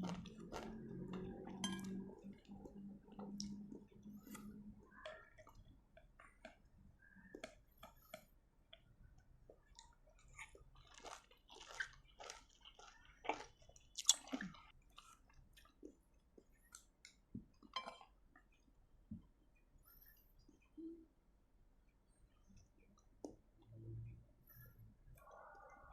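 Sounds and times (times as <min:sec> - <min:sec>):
chewing crunches and mouth smacks: 0:00.0 - 0:06.7, 0:07.3 - 0:18.7.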